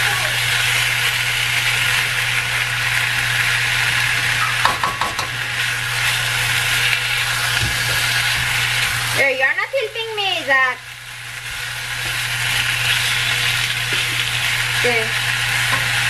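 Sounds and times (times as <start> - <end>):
chicken sizzling in a wok: 0.0 - 16.0
spatula knocking against pan: 4.4 - 5.4.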